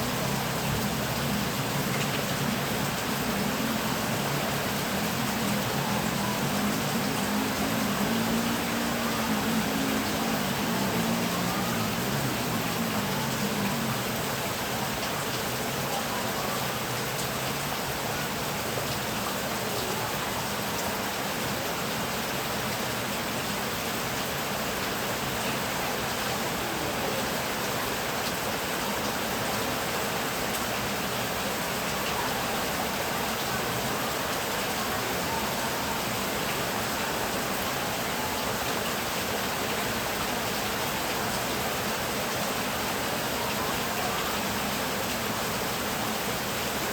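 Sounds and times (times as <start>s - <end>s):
heavy rain: 0.0s - 46.9s.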